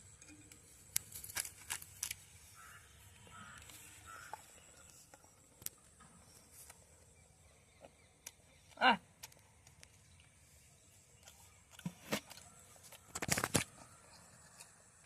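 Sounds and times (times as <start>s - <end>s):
crow cawing faintly: 2.5s - 4.5s.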